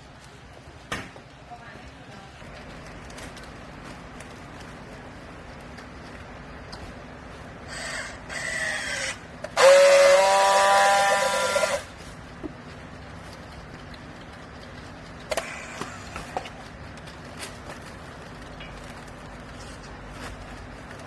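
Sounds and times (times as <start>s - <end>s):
loud high-pitched squeal: 7.7s - 11.9s.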